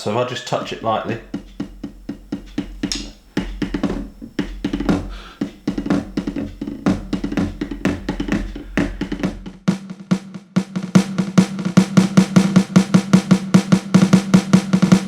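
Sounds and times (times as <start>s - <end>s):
light electronic drum hits: 0.5s - 9.7s.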